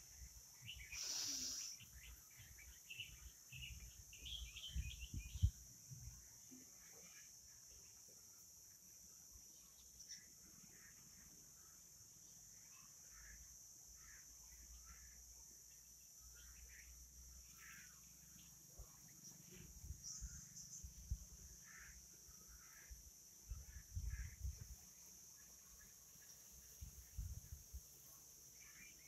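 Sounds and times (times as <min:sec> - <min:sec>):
birds chirping: 0:00.0 - 0:05.7
steady high hiss: 0:00.0 - 0:29.0.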